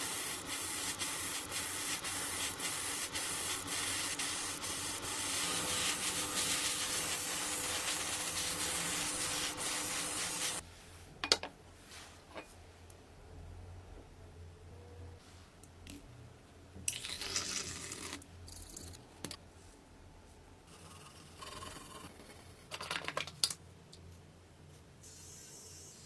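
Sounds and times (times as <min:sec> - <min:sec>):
abrasive rubbing on hard surface: 0:00.0 - 0:10.6.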